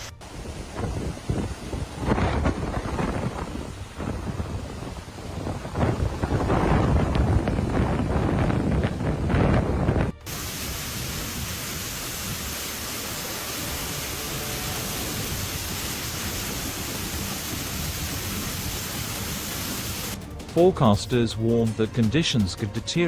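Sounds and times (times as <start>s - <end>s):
wind buffeting microphone: 0.2s - 20.2s
steady hiss: 10.3s - 20.2s.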